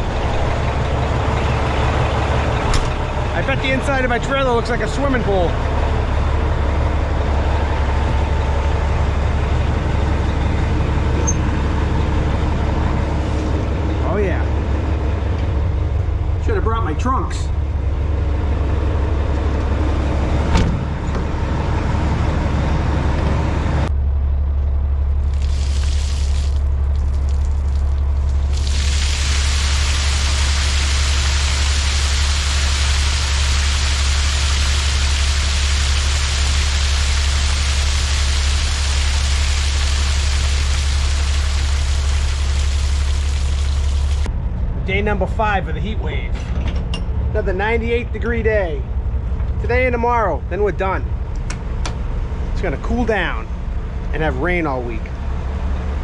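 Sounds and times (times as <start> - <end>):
diesel truck engine idling: 0.0 - 46.3
rainwater pouring out: 25.1 - 44.3.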